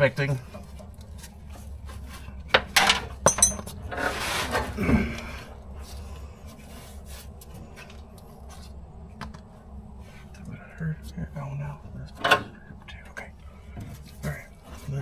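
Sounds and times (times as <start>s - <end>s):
metallic clinks: 3.2s - 3.7s
scraping rustle: 3.7s - 5.1s.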